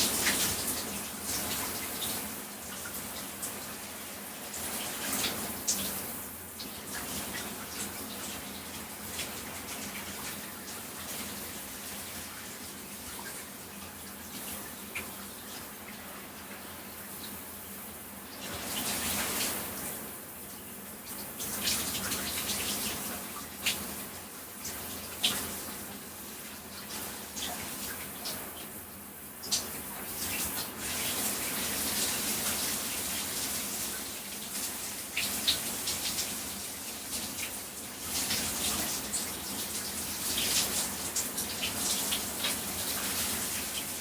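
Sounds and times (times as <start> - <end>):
shower water spraying: 0.0 - 6.2, 29.4 - 44.0.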